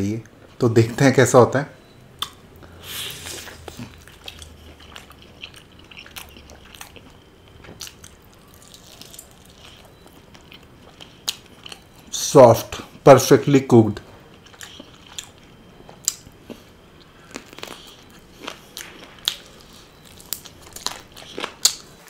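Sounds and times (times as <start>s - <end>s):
small mouth clicks: 2.2s - 2.4s
person chewing food: 2.2s - 12.1s, 14.2s - 22.0s.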